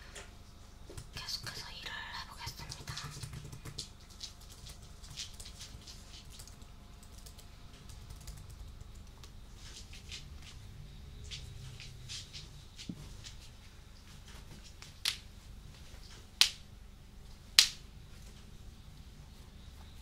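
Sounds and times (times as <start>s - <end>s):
keyboard typing: 2.5s - 9.3s.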